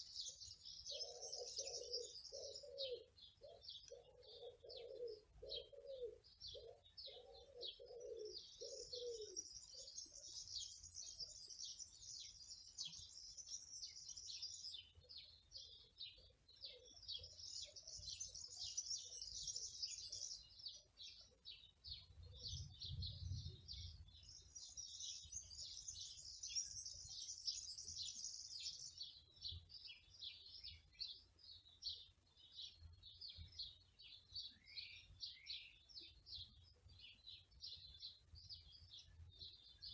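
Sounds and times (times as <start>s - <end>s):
lower repeated bird call: 0.0s - 21.3s
small birds chirping: 0.0s - 39.9s.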